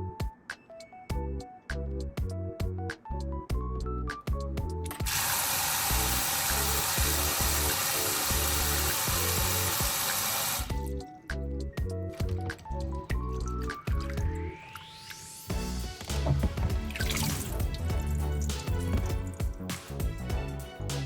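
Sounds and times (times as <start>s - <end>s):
background music with plucked notes: 0.0s - 21.0s
water running from a tap: 4.9s - 10.9s.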